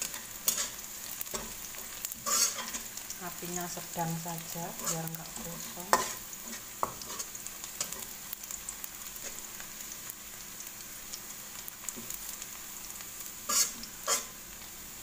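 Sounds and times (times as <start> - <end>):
metal spatula scraping a pan: 0.0 - 3.0, 4.7 - 8.1, 13.4 - 14.4
shallots and garlic sizzling in oil: 0.0 - 15.0.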